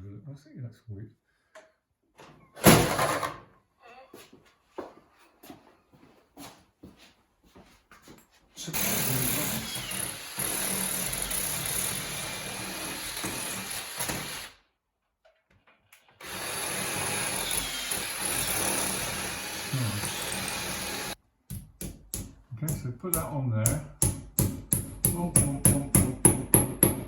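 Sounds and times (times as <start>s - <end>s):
electric power tool running: 16.2s - 21.2s.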